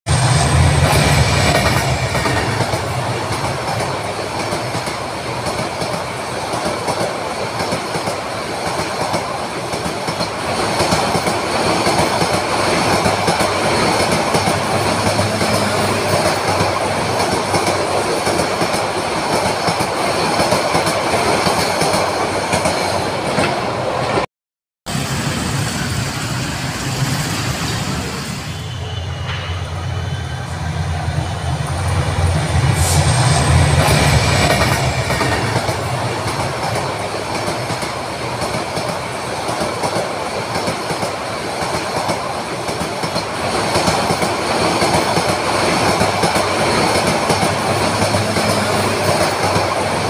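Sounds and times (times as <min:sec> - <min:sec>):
diesel locomotive rumbling past: 0:00.1 - 0:07.8, 0:09.2 - 0:24.2, 0:24.9 - 0:50.0
high wheel squeal: 0:25.4 - 0:31.8.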